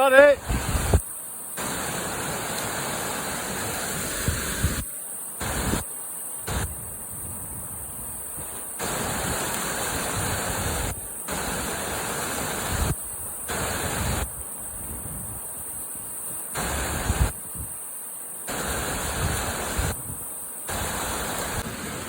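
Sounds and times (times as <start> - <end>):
rushing whitewater: 0.0 - 6.8, 8.1 - 22.0.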